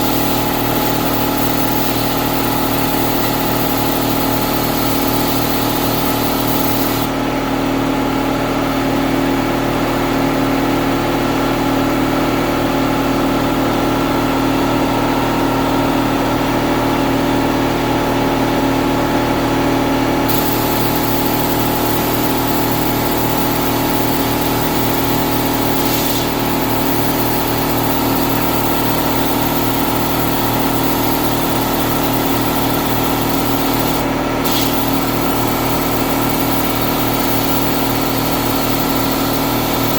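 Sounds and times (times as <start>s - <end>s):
short air bursts: 0.0s - 7.1s, 20.3s - 39.9s
air compressor humming: 0.0s - 7.5s, 20.1s - 39.9s.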